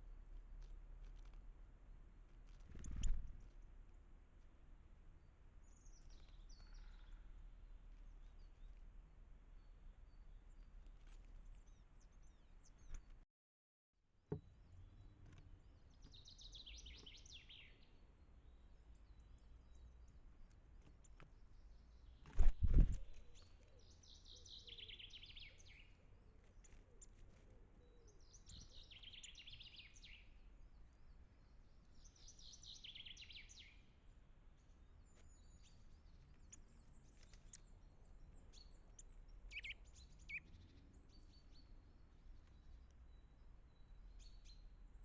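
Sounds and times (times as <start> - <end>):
songbird singing: 2.7 - 13.2, 14.3 - 45.0
bird chips and calls: 5.7 - 7.4, 15.8 - 17.9, 18.9 - 30.4, 34.7 - 45.0.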